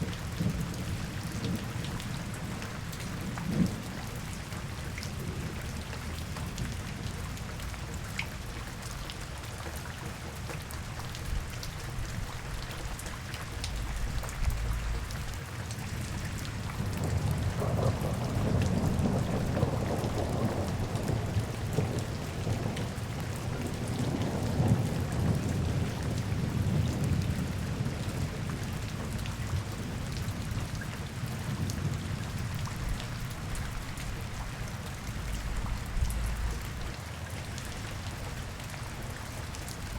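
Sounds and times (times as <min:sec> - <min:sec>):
rain pattering: 0:00.0 - 0:39.9
deep rumble: 0:13.6 - 0:15.4, 0:35.1 - 0:36.9.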